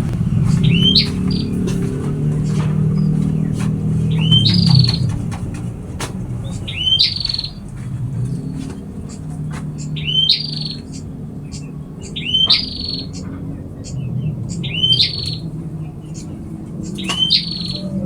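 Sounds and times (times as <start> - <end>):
songbird whistle and buzzy trill: 0.5 - 1.6, 4.0 - 5.1, 6.4 - 7.6, 8.5 - 15.5, 16.1 - 18.0.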